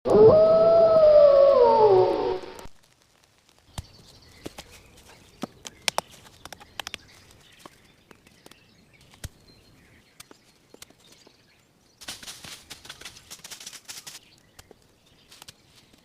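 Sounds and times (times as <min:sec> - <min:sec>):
twigs snapping: 0:02.6 - 0:09.4, 0:12.0 - 0:16.0
dry leaves rustling and crackling: 0:12.0 - 0:16.0.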